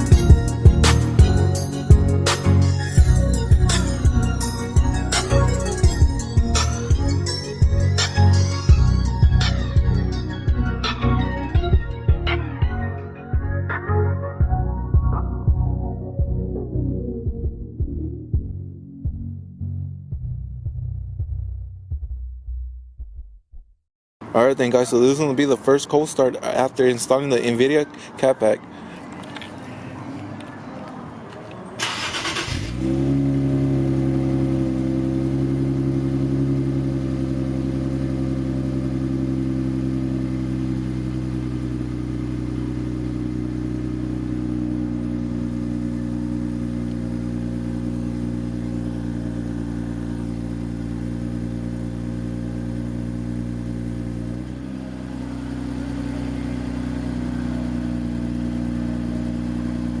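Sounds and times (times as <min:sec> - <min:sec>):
engine cranking: 0:31.8 - 0:32.8
car engine fast idle: 0:31.8 - 0:33.0, 0:33.6 - 1:00.0.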